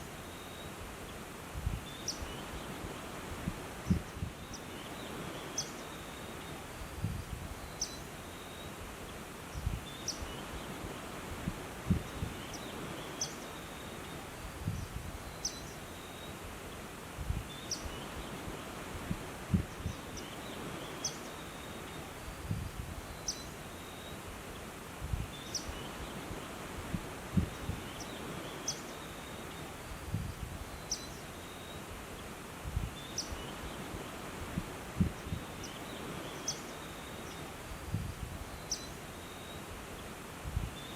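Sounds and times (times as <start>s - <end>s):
steady background hiss: 0.0s - 40.9s
bird chirping: 30.8s - 31.8s, 38.6s - 40.1s.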